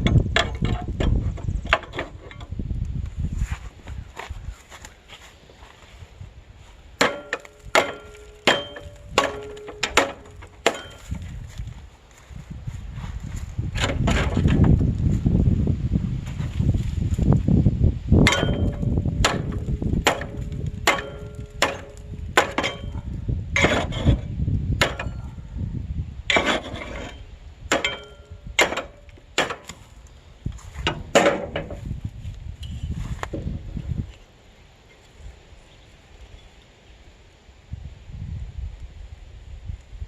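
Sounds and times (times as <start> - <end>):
low rumbling handling noise: 0.0 - 35.3
hatchet blows on metal: 7.0 - 11.2, 18.2 - 25.5, 26.3 - 29.8.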